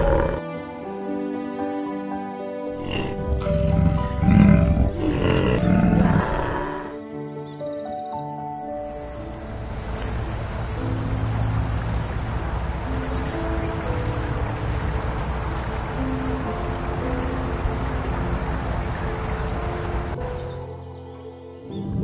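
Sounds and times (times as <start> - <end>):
soft background music: 0.0 - 22.0
high-pitched insect trill: 8.6 - 20.7.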